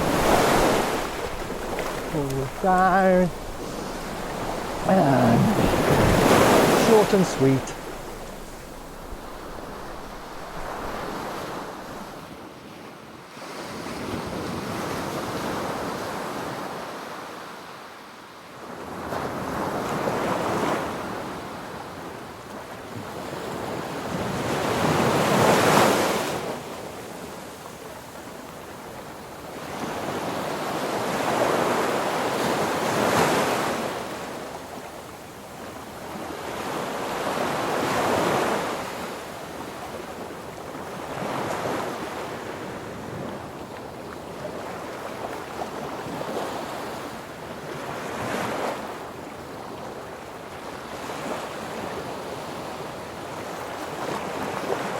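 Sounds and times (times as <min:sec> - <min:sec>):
wind gusting over microphone: 0:00.0 - 0:12.3.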